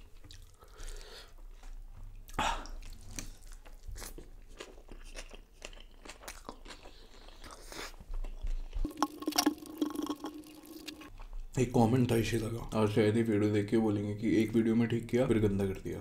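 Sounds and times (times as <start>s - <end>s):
person chewing crunchy food: 0.0s - 11.4s.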